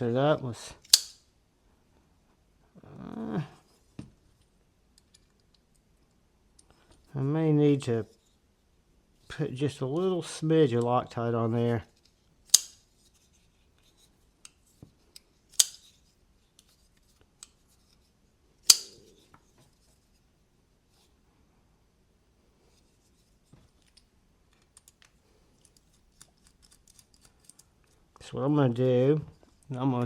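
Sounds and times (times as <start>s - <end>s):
knife blade snapping metallic click: 0.9s - 1.2s, 12.5s - 12.8s, 15.6s - 15.9s, 18.7s - 19.1s.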